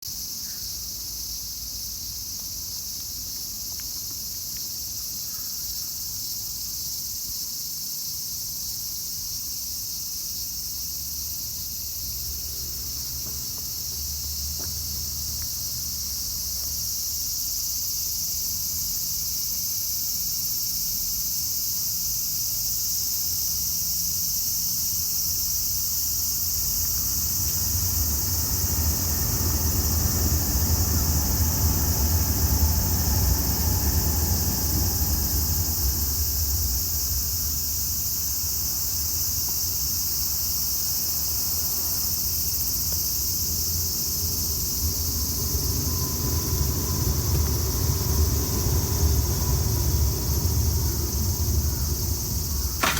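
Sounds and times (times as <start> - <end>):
high-pitched insect chorus: 0.0 - 52.9
low rumble: 26.3 - 38.6, 43.5 - 52.9.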